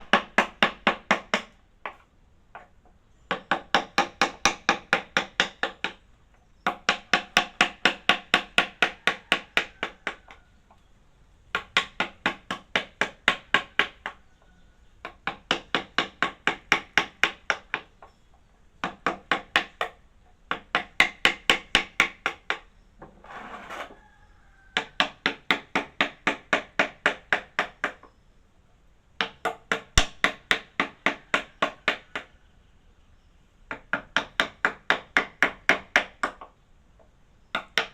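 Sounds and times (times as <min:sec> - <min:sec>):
hammer tapping on wood: 0:03.3 - 0:10.8, 0:11.5 - 0:18.2, 0:18.8 - 0:22.7, 0:24.7 - 0:28.2, 0:29.2 - 0:32.3, 0:33.7 - 0:37.9
short scraping: 0:23.1 - 0:24.0.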